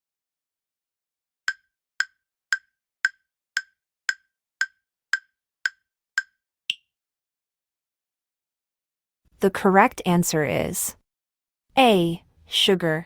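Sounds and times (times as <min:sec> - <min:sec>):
timer ticking: 0:01.5 - 0:06.8.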